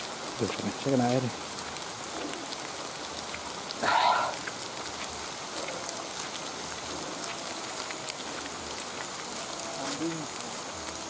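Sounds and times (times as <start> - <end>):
light rain pattering on leaves: 0.0 - 11.0.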